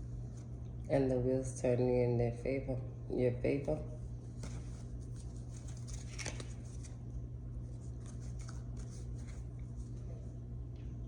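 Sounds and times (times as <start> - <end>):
steady low hum: 0.0 - 11.0
cards being handled: 4.3 - 7.0, 7.6 - 10.0.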